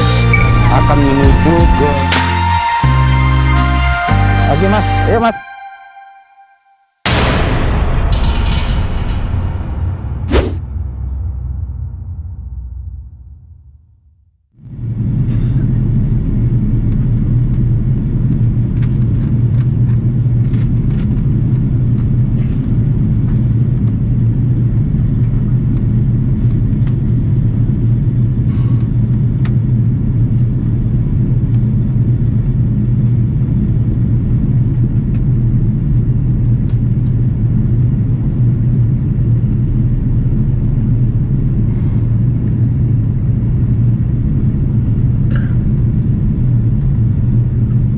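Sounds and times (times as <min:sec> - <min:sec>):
airliner cabin drone: 0:14.6 - 0:47.9.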